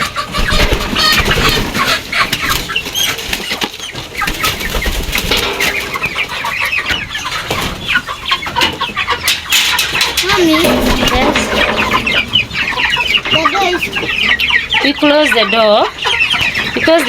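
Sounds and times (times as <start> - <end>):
chickens clucking and squawking: 0.0 - 17.0
wings flapping: 0.2 - 5.9.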